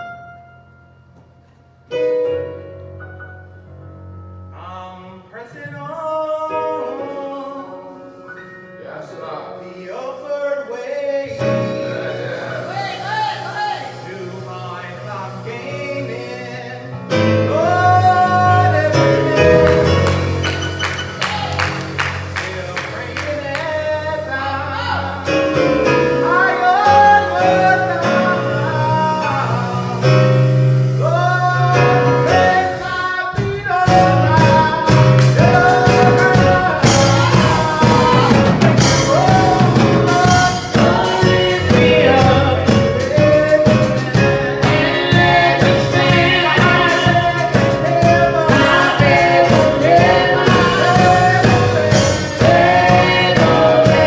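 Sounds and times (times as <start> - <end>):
choir singing gospel song: 8.8 - 54.0
drums steady beat: 17.4 - 54.0.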